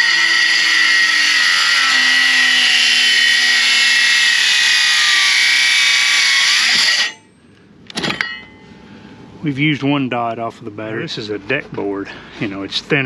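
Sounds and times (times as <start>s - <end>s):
circular saw cutting board: 0.0s - 7.2s.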